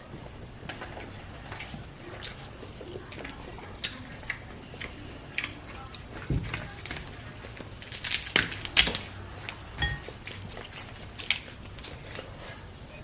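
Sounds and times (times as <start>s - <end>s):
shells cracking and snapping: 6.6s - 12.2s.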